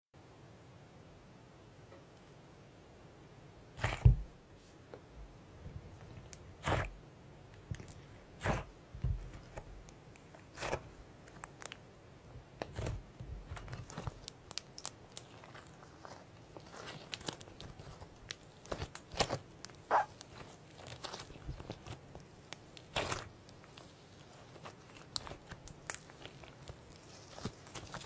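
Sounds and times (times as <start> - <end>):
slime squeezed by hand: 3.8 - 4.1, 6.6 - 6.9, 18.6 - 22.0.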